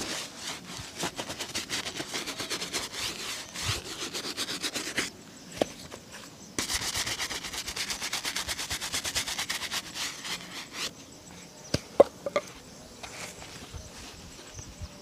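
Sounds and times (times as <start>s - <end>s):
shoe being rubbed scratchy: 0.0s - 6.0s, 6.6s - 10.9s.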